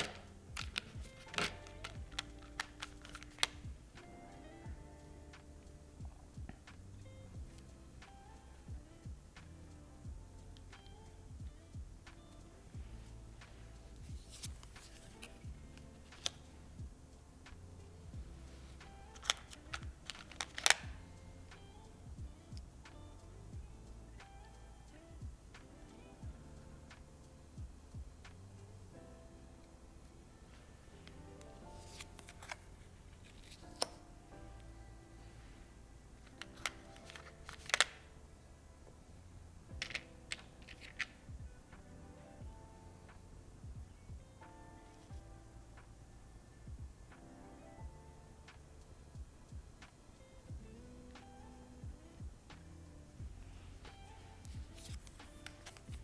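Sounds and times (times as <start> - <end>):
soft background music: 0.0 - 56.0
board game pieces clicking: 39.8 - 41.2.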